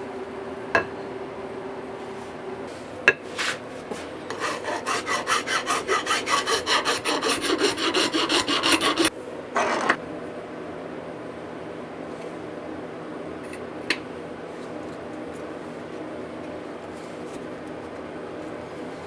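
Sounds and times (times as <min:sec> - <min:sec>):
hand filing a hatchet: 0:04.3 - 0:09.1.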